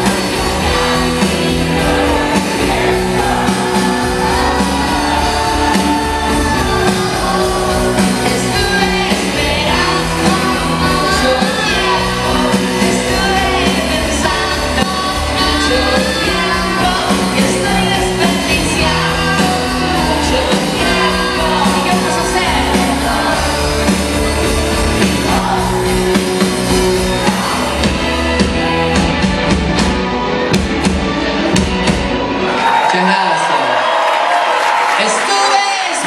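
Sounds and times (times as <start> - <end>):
person singing: 0.0 - 24.0, 24.8 - 28.2
live band playing a song: 0.0 - 33.7.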